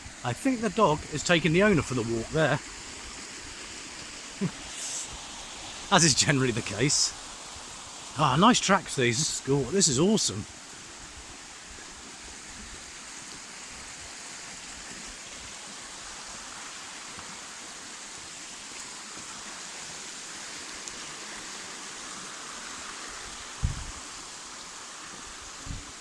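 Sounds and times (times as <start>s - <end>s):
stream water running: 0.0s - 26.0s
brief low thump: 23.6s - 23.9s.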